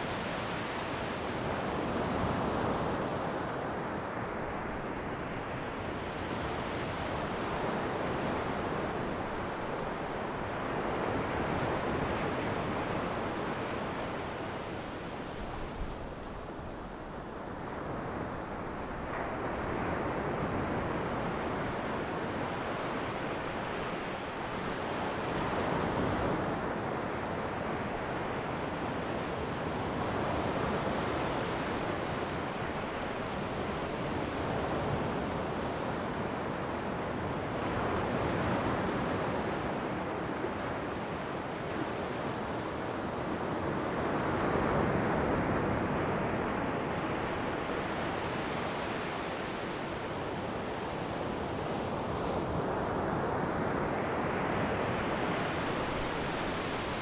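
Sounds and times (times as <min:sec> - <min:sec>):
ocean waves washing onto shore: 0:00.0 - 0:57.0.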